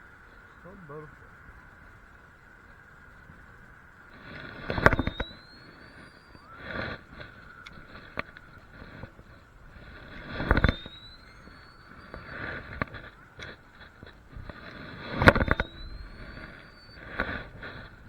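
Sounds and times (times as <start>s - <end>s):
firework whistle: 4.3s - 7.8s, 9.8s - 13.6s, 14.7s - 18.0s.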